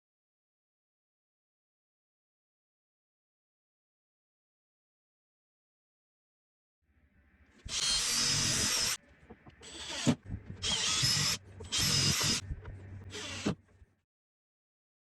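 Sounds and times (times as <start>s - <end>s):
power drill whining: 7.7s - 9.0s, 9.6s - 12.4s, 13.0s - 13.7s.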